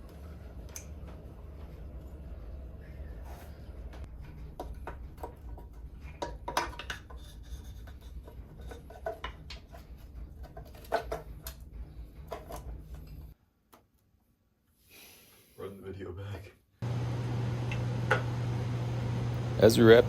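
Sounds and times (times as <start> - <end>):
steady low hum: 16.8 - 20.0.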